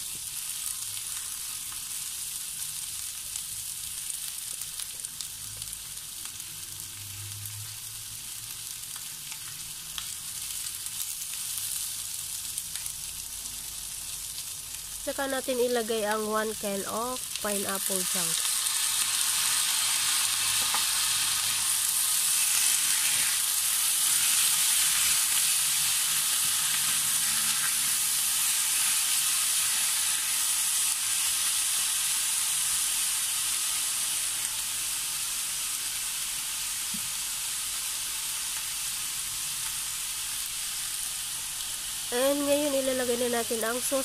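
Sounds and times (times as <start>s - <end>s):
vegetables sizzling in hot oil: 0.0s - 44.0s.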